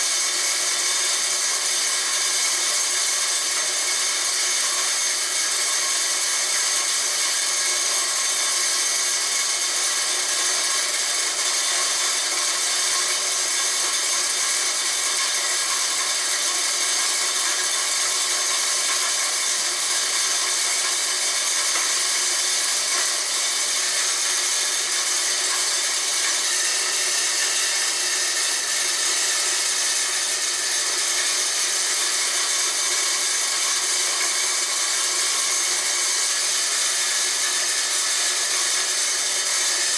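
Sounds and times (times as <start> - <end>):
corn grinder whining and grinding: 0.0 - 39.9.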